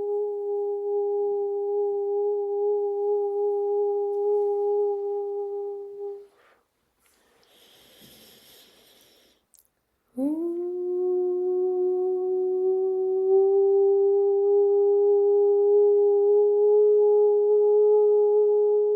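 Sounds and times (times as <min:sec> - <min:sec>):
person humming a long tone: 0:00.0 - 0:06.4, 0:10.1 - 0:18.9
faint breathy hiss: 0:06.2 - 0:10.3.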